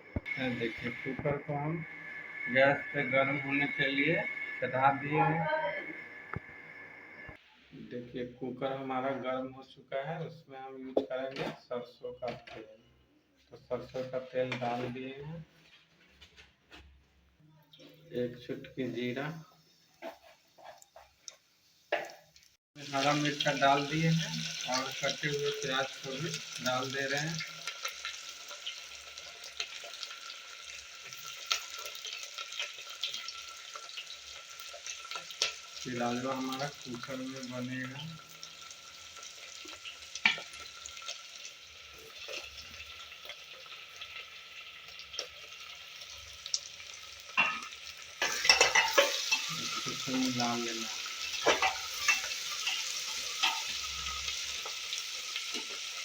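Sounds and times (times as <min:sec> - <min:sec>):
onions sizzling in hot oil: 0:00.0 - 0:07.4, 0:18.5 - 0:56.0
oil crackling and popping: 0:20.0 - 0:56.0.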